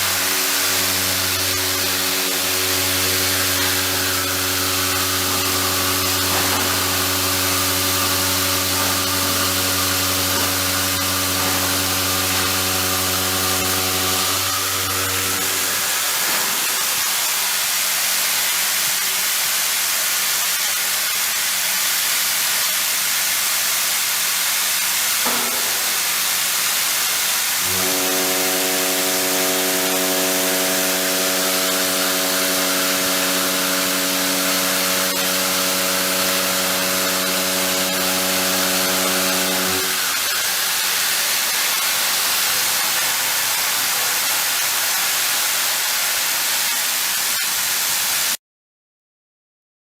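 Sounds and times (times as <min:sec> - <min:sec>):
steady pitched hum: 0:00.0 - 0:16.9
milling machine hissing: 0:00.0 - 0:20.8, 0:24.4 - 0:48.3.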